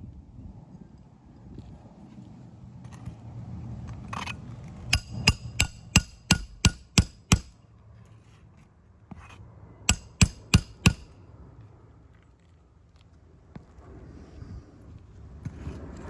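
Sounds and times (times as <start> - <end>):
hammer striking metal: 4.9 - 7.5, 9.9 - 11.1.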